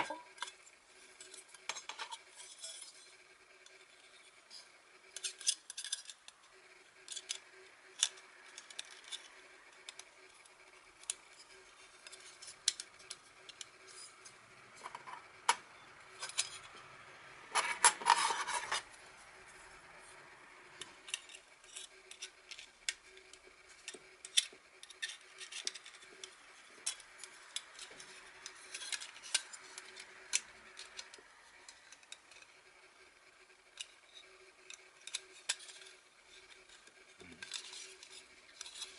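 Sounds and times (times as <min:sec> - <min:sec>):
scraping and rustling: 0:17.5 - 0:32.5, 0:33.7 - 0:38.9.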